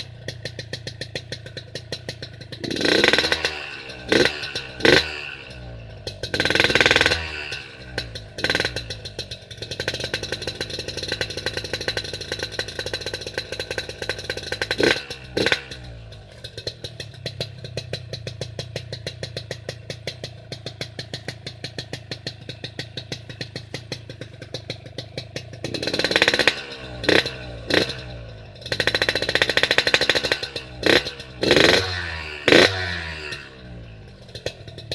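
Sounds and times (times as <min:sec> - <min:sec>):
motorcycle engine revving: 0:00.0 - 0:34.9
motorcycle exhaust idling: 0:00.0 - 0:34.9.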